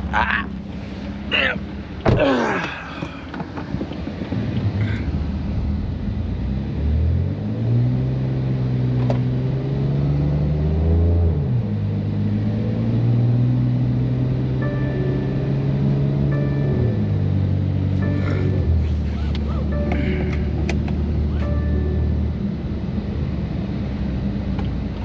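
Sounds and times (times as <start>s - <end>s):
car engine revving at low revs: 0.0s - 25.0s.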